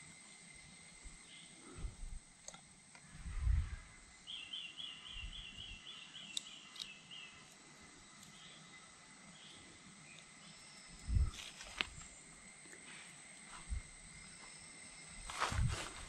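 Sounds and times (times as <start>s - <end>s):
insects droning: 0.0s - 16.0s
bird chirping: 3.5s - 11.3s.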